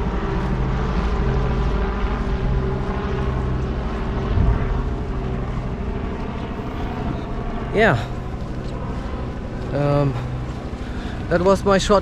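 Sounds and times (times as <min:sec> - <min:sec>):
helicopter rotor drone: 0:00.0 - 0:12.0
low bump: 0:04.2 - 0:05.6.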